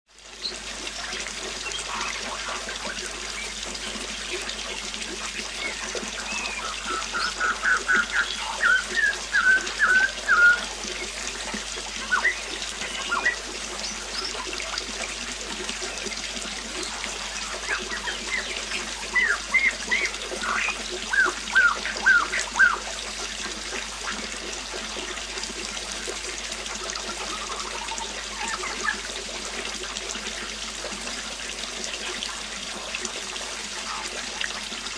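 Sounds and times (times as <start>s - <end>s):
songbird singing: 5.5s - 11.2s, 12.0s - 14.5s, 16.8s - 22.8s, 27.3s - 29.0s
waterfall rushing: 5.6s - 14.3s, 16.8s - 22.8s.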